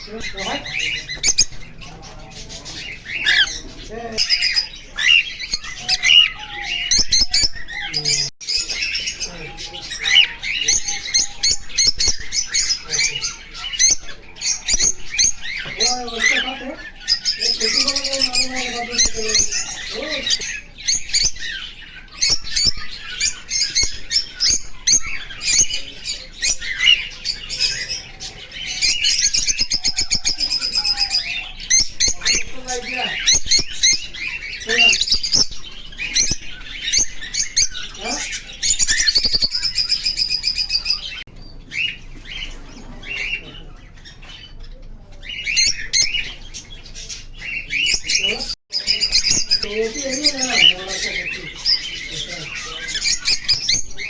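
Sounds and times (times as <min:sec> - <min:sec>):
cockatiel chattering: 0:00.0 - 0:42.0
cockatiel squawking and chirping: 0:00.4 - 0:17.8.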